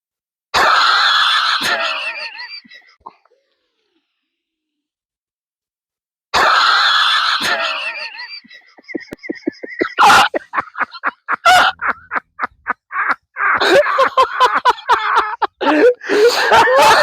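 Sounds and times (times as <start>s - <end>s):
person laughing breathlessly: 7.4s - 17.0s.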